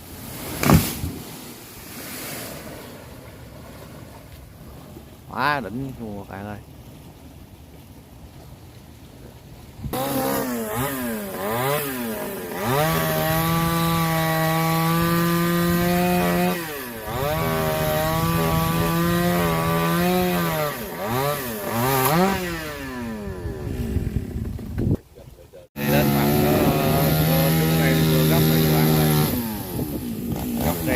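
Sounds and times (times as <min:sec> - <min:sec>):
chainsaw cutting wood: 0:00.4 - 0:01.2, 0:09.9 - 0:24.9, 0:25.8 - 0:30.9
chainsaw revving: 0:09.9 - 0:24.8, 0:25.8 - 0:30.9.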